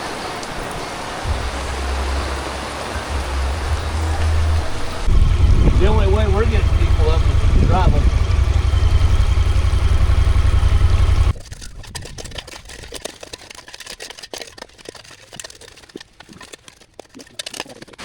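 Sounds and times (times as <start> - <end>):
raindrops ticking in heavy rain: 0.0 - 11.4
vehicle engine idling: 1.3 - 11.4.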